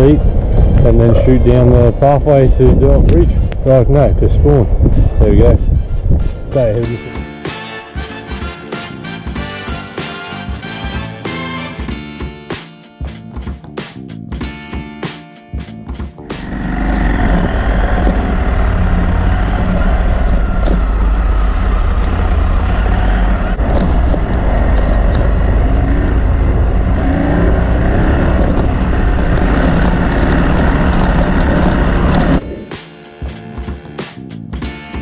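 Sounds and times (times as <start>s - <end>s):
wind noise on microphone: 0.0s - 7.3s, 16.4s - 32.7s
motorcycle engine rumble: 16.2s - 32.8s.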